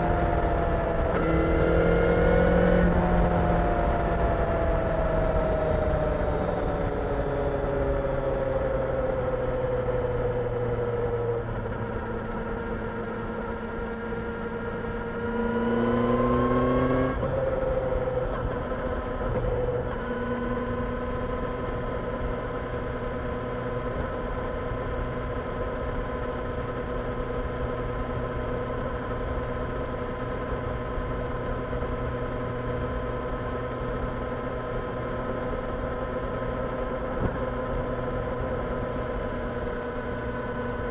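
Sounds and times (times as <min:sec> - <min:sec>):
motorcycle engine revving: 0:00.3 - 0:04.6, 0:14.7 - 0:17.7.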